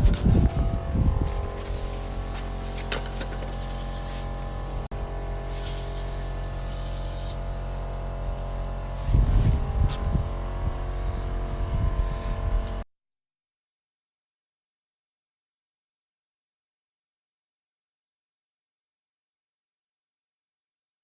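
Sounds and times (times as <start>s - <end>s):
paint spray gun hissing: 1.3s - 7.4s.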